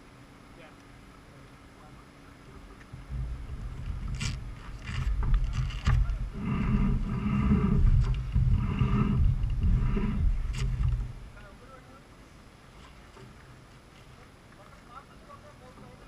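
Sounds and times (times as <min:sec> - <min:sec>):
heavy low rumble: 0:02.5 - 0:11.8.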